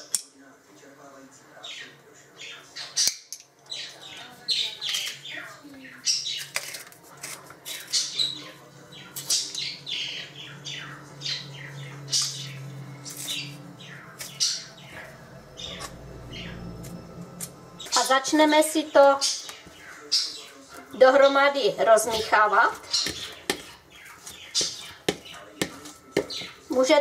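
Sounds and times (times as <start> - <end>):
bird squawking and chirping: 7.7 - 16.8, 17.8 - 20.6, 22.0 - 26.9
low steady hum: 9.7 - 20.1.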